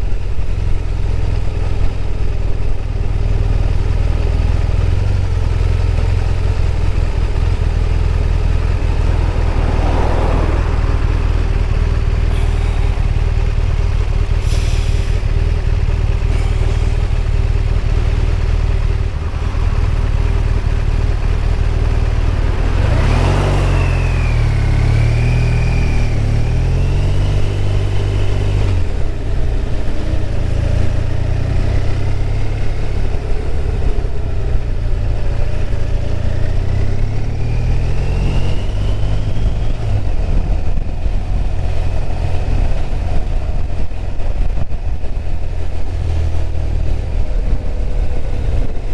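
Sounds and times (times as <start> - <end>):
motorcycle engine running: 0.0 - 37.1
wind and road noise: 0.0 - 48.9
brief whooshes: 7.3 - 13.2.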